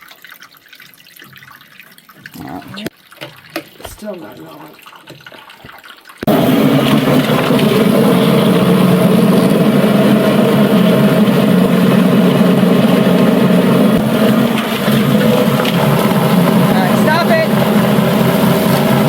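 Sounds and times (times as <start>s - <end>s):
electric motor running: 6.3s - 19.0s.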